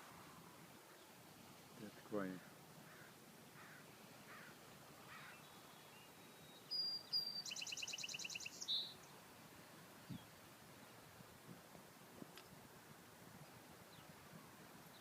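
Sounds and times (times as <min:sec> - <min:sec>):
songbird singing a trill: 0:05.2 - 0:09.2, 0:13.9 - 0:14.1.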